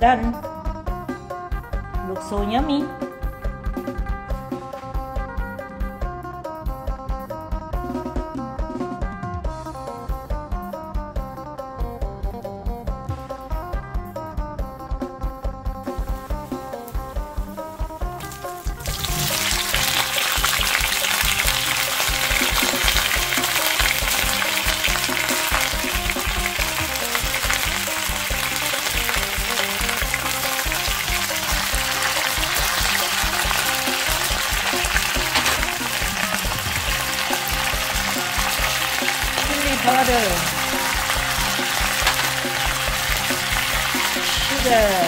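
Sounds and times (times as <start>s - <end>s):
background music: 0.0s - 45.0s
beans sizzling in hot oil: 15.8s - 45.0s.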